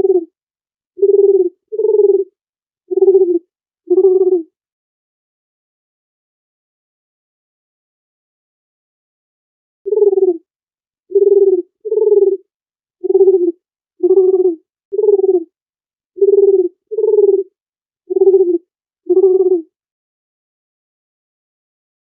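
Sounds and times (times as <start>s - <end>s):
dove cooing: 0.0s - 0.3s, 1.0s - 2.3s, 2.9s - 4.5s, 9.9s - 10.4s, 11.1s - 12.4s, 13.0s - 15.5s, 16.2s - 17.5s, 18.1s - 19.7s.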